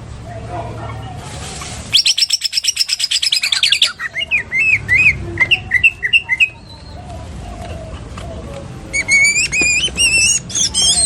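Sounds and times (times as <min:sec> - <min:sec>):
bird whistled chirps: 0:01.9 - 0:07.0, 0:08.9 - 0:11.0
bird chattering trill: 0:01.9 - 0:11.0.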